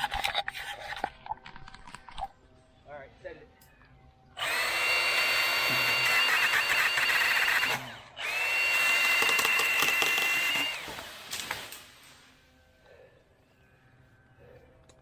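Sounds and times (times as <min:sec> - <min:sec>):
battery chainsaw cutting branch: 0:04.4 - 0:12.0.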